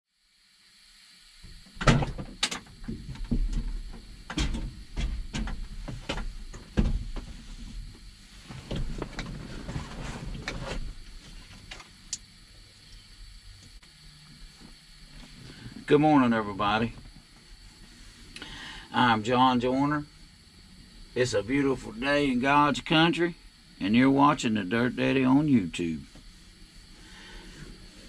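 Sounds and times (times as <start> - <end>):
irregular knocks and clunks: 1.8 - 7.4.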